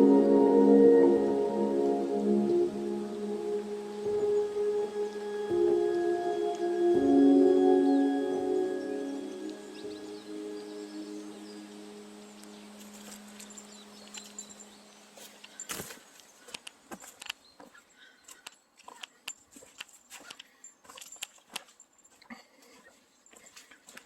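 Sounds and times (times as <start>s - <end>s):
music chord: 0.0s - 15.0s
footsteps crunching twigs: 12.6s - 24.0s.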